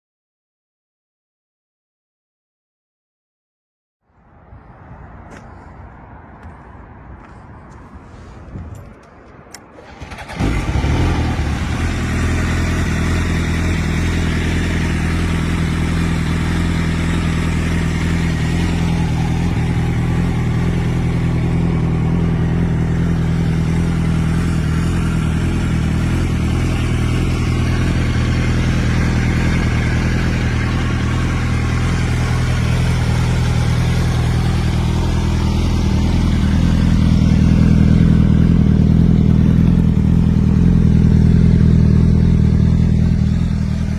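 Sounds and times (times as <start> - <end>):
motorcycle engine idling: 9.8 - 43.9.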